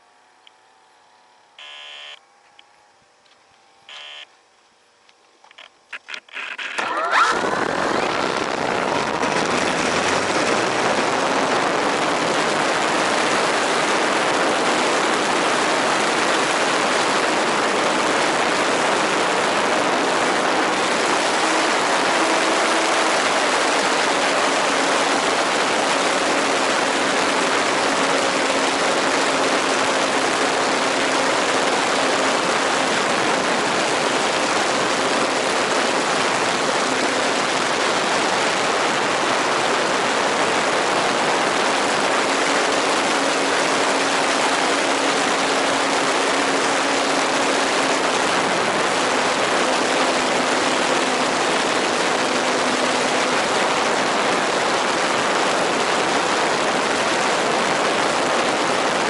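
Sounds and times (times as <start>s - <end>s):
model airplane engine hum: 0.0s - 59.0s
steady rushing noise: 7.2s - 59.0s.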